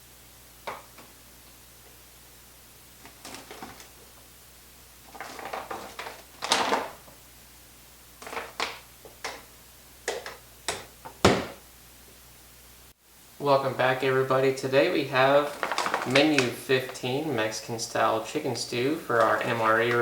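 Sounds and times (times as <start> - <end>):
rustling of objects: 3.0 - 4.3, 5.0 - 7.2, 8.2 - 9.4, 15.2 - 17.2, 19.1 - 20.0.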